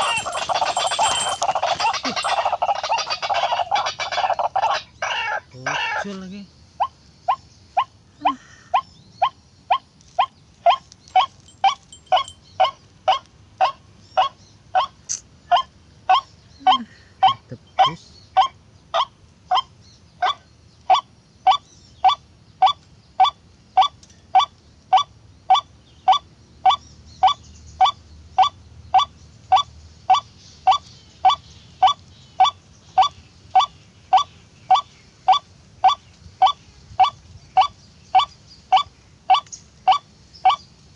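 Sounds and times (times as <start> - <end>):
waterhen calling: 0.0 - 6.2, 9.2 - 14.9, 15.5 - 40.7.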